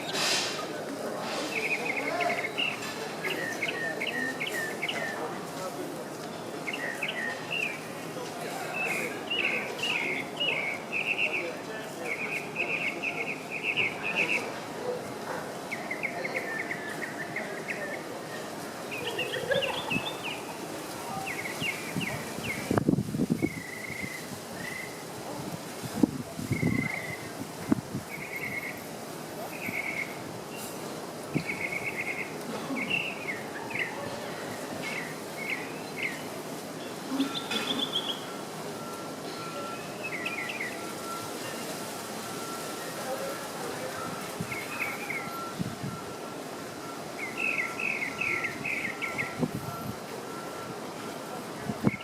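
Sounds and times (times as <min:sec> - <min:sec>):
steady background hiss: 0:00.0 - 0:52.0
bird singing trills and whistles: 0:23.4 - 0:25.0, 0:36.8 - 0:41.7, 0:47.2 - 0:49.4
mockingbird singing repeated notes: 0:37.2 - 0:39.0.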